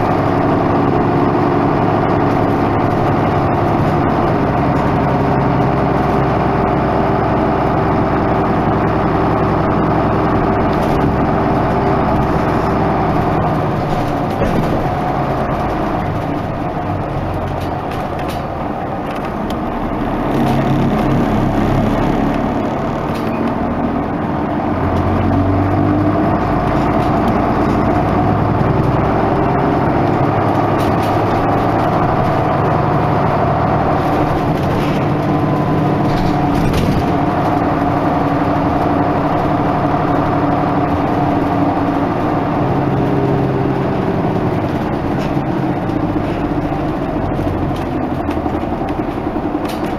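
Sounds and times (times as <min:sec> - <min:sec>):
bus diesel engine running: 0:00.0 - 0:49.9.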